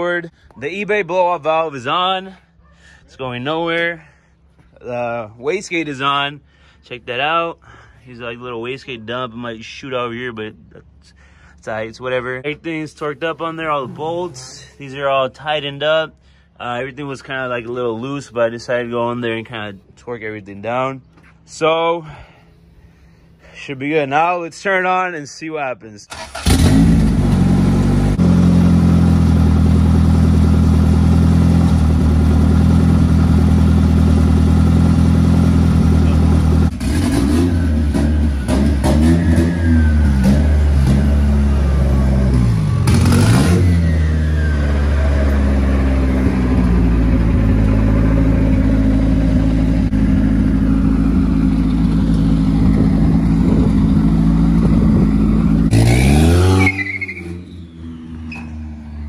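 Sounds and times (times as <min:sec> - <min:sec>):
car engine idling and revving: 0:26.1 - 0:59.0.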